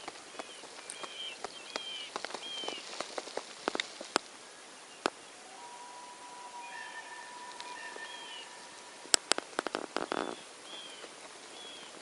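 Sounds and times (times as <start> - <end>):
water dripping and ticking: 0.0 - 4.3
birds chirping: 0.0 - 12.0.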